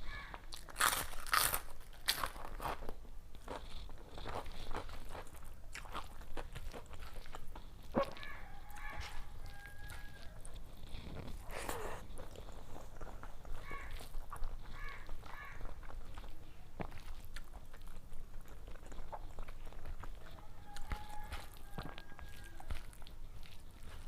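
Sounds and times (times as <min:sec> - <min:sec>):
crackling: 0:00.0 - 0:24.0
chewing and mouth noises: 0:00.4 - 0:24.0.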